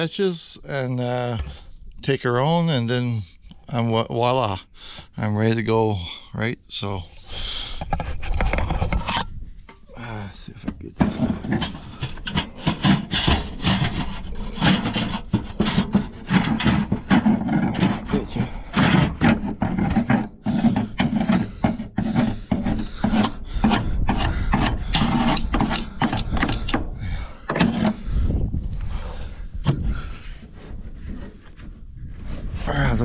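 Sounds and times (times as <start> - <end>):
scraping and rubbing strokes: 11.0 - 26.9, 29.8 - 33.0.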